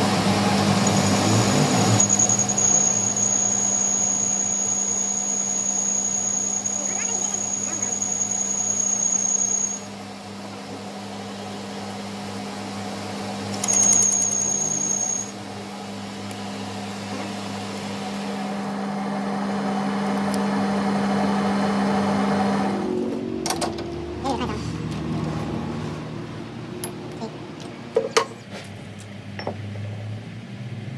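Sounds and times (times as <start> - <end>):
high-pitched machine whine: 0.0 - 17.2
workshop machine humming: 0.0 - 30.0.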